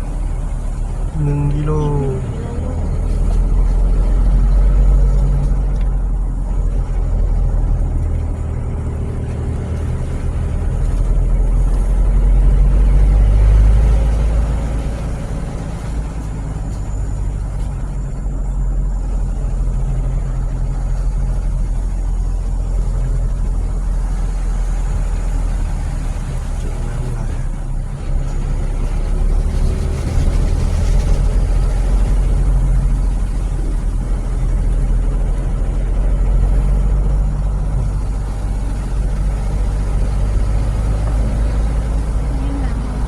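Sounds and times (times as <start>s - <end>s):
car engine and road rumble: 0.0s - 43.0s.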